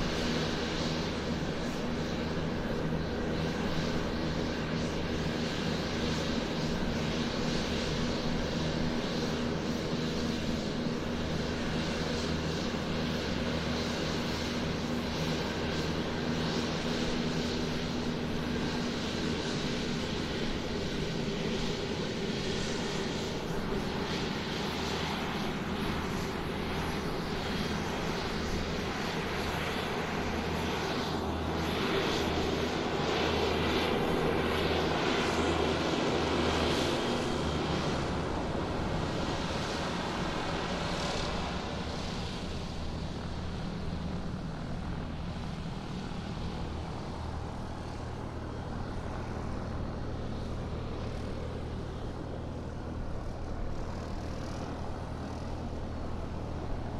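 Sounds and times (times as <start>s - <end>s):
aircraft engines running: 0.0s - 56.9s.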